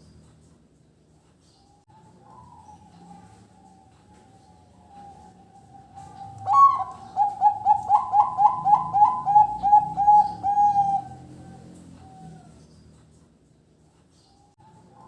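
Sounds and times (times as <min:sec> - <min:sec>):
dove cooing: 0:01.9 - 0:12.8.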